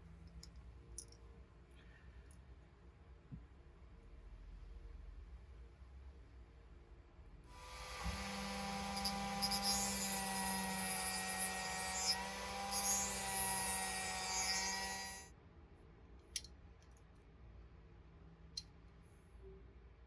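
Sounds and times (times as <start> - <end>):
power tool whining and grinding: 7.6 - 15.3.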